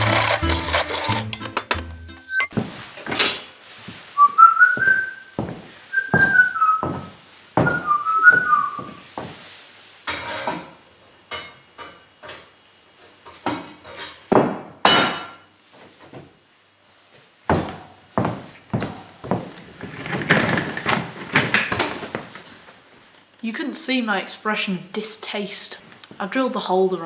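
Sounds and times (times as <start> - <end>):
tools and metal parts clunking: 0.0 - 2.6
person whistling: 4.2 - 5.4, 6.0 - 9.0.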